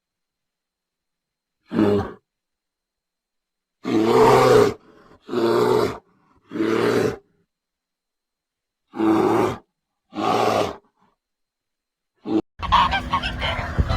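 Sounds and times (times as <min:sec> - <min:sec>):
large animal calling: 0:03.8 - 0:07.4, 0:08.9 - 0:10.9, 0:12.2 - 0:13.9.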